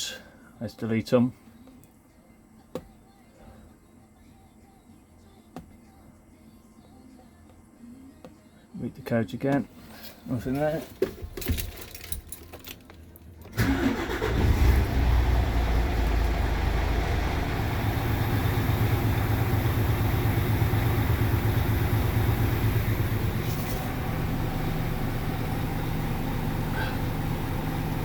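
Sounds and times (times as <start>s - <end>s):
truck diesel engine idling: 13.5s - 28.0s
truck diesel engine starting: 13.5s - 28.0s.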